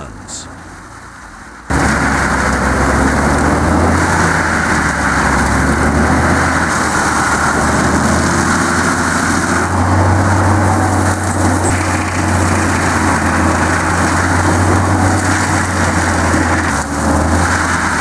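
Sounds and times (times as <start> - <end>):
heavy machine engine droning: 0.0 - 18.0.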